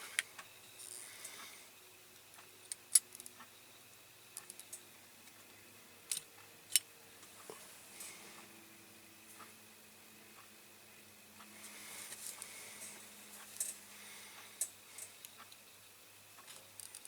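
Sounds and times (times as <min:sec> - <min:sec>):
small parts and tools clicking: 0:02.2 - 0:03.5, 0:04.4 - 0:04.8, 0:06.1 - 0:06.9, 0:13.5 - 0:13.8, 0:16.4 - 0:17.0.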